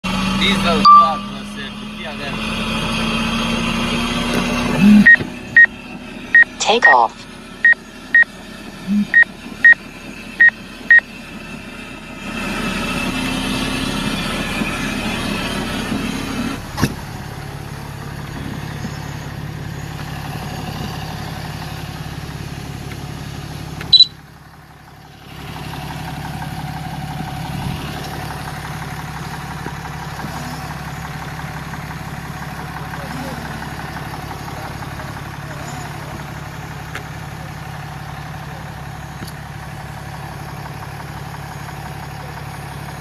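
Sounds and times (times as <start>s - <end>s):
car engine and road noise: 0.0s - 43.0s
short electronic beeps: 0.8s - 1.5s, 6.3s - 8.3s, 8.9s - 9.8s, 23.9s - 24.2s.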